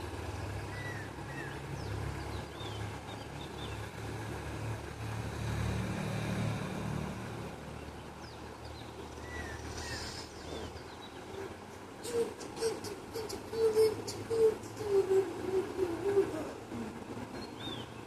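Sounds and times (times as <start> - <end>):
low motor rumble: 0.0 - 18.0
small birds chirping: 0.3 - 4.5, 7.7 - 18.0.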